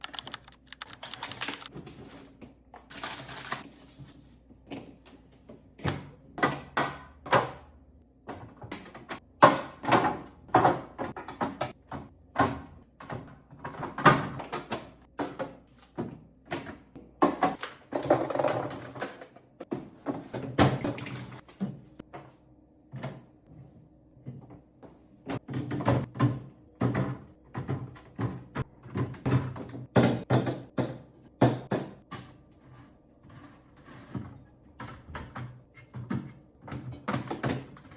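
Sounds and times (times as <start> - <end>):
containers knocking and clattering: 8.4 - 21.8.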